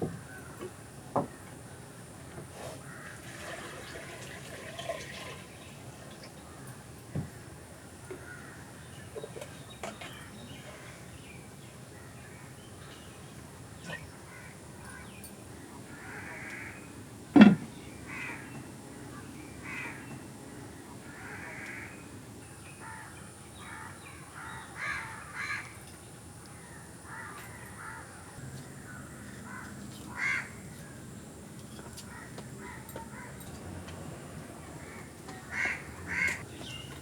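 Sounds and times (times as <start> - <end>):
birds giving harsh calls: 13.7 - 25.8, 28.8 - 30.7, 32.0 - 37.0.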